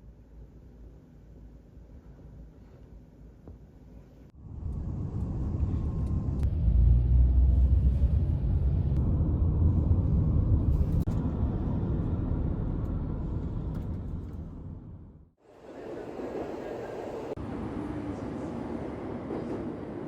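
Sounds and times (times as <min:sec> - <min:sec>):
low vehicle rumble: 0:04.4 - 0:15.4.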